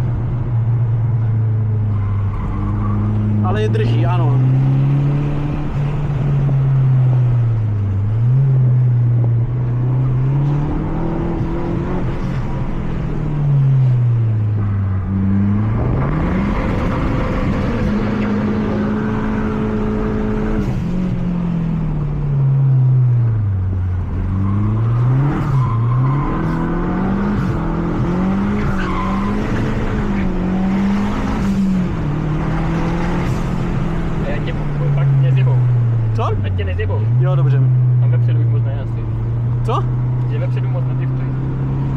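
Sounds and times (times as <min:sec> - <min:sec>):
car engine revving: 0:00.0 - 0:41.9
tyre and road noise: 0:00.0 - 0:41.9
tyre squeal: 0:24.3 - 0:27.6, 0:28.4 - 0:30.3.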